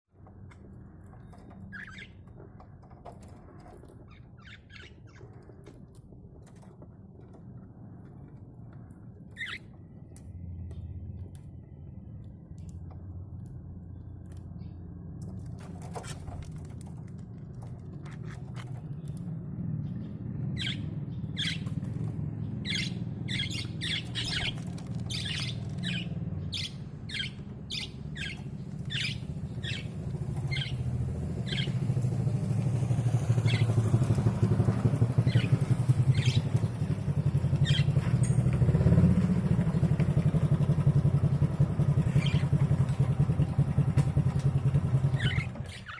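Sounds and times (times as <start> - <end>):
engine rumbling: 0.1 - 45.9
budgerigar chirping: 1.7 - 2.2, 9.4 - 9.7, 22.6 - 30.8, 31.4 - 31.8, 42.1 - 42.4, 45.2 - 45.9.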